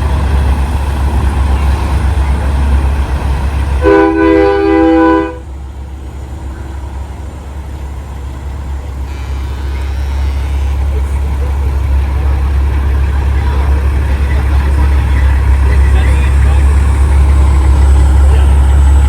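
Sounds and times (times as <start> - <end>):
heavy trucks rumbling: 0.0 - 19.0
truck air horn chord: 3.8 - 5.5, 9.0 - 11.1.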